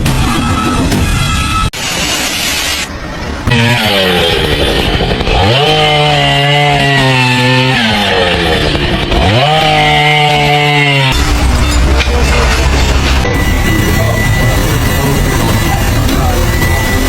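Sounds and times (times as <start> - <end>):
small engine revving: 3.5 - 11.2.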